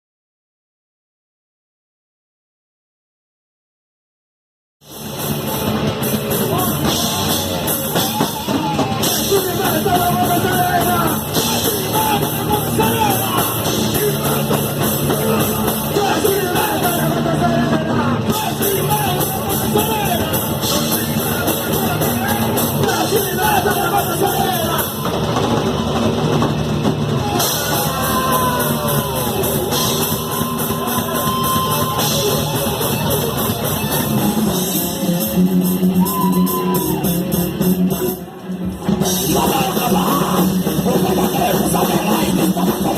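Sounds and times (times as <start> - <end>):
drum kit pounding: 4.8 - 42.9
heavy electric guitars: 4.9 - 42.9
person singing: 39.1 - 42.9.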